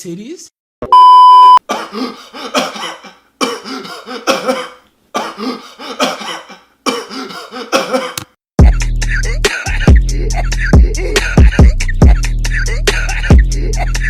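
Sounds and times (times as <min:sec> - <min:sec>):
person coughing hard: 0:01.6 - 0:08.3, 0:11.1 - 0:11.8
hip-hop music with heavy bass: 0:08.6 - 0:14.0.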